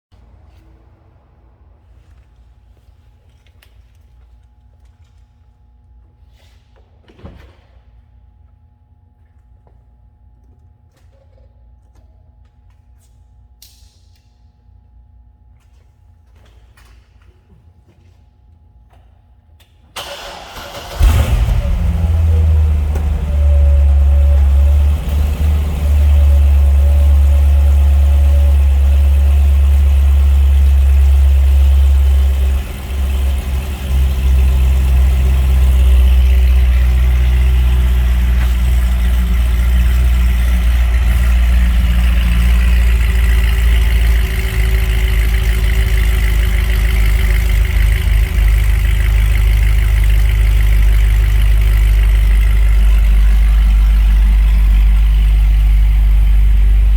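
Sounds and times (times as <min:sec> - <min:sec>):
car engine idling: 0:20.0 - 0:56.9.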